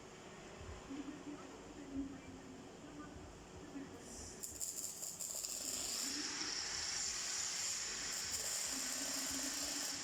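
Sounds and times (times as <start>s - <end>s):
welding arc hissing: 4.4s - 10.0s.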